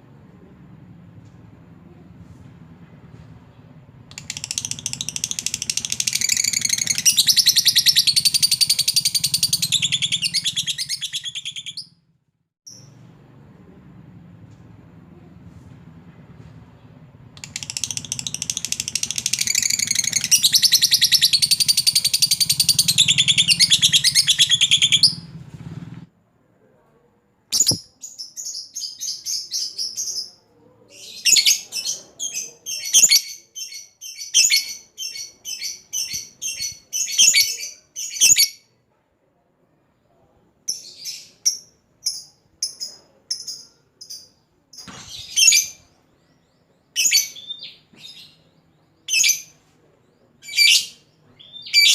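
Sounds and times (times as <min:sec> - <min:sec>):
lovebird chattering trill: 0:04.1 - 0:11.9, 0:17.4 - 0:25.2, 0:27.6 - 0:27.8
sharp bird chirps: 0:04.1 - 0:12.0, 0:17.4 - 0:25.3, 0:27.5 - 0:30.4.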